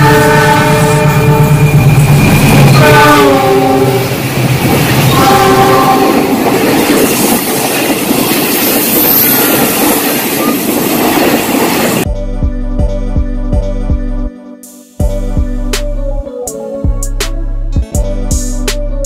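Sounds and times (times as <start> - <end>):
train horn: 0.0 - 4.4, 5.0 - 6.6
moving train noise: 0.0 - 12.1.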